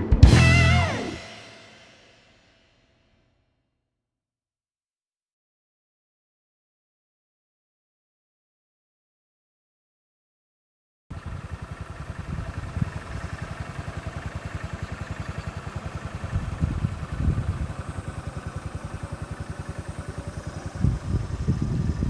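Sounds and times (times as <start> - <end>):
small engine running: 11.1 - 22.0.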